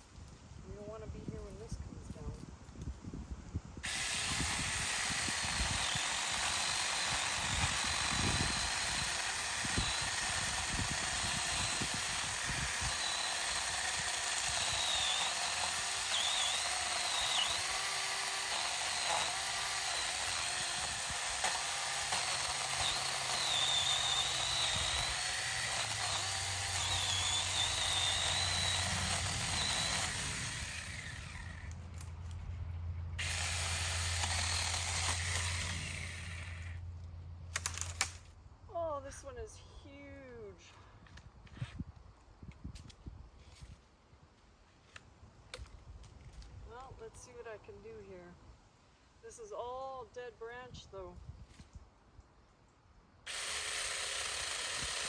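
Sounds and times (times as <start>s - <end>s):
mini chainsaw cutting branch: 3.8s - 32.4s, 33.2s - 36.8s, 37.5s - 38.3s, 53.3s - 55.0s.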